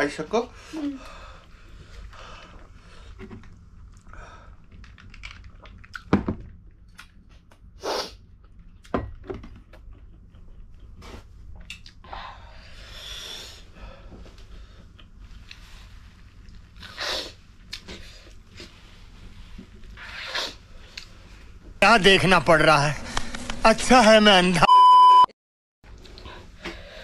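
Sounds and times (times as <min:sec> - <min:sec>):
chewing: 0:03.4 - 0:06.1, 0:14.8 - 0:17.0.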